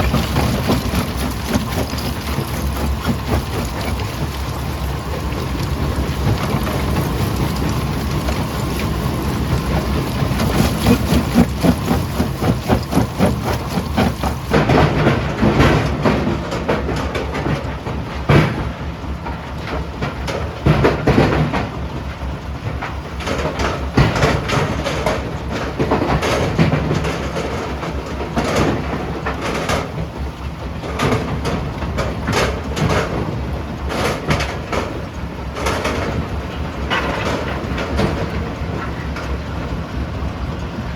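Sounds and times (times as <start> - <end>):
rock cracking and knocking: 0.0 - 4.6
jaw crusher rumbling: 0.0 - 17.1.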